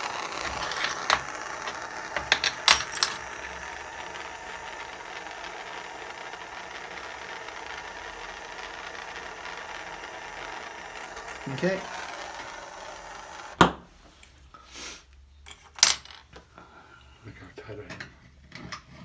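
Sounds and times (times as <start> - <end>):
steady hiss: 0.0 - 5.6
metal tools clinking: 2.2 - 3.2.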